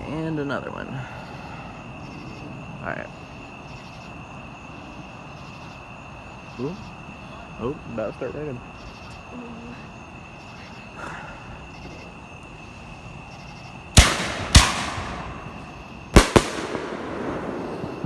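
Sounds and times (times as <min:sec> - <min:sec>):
fireworks bangs: 0:13.9 - 0:18.0.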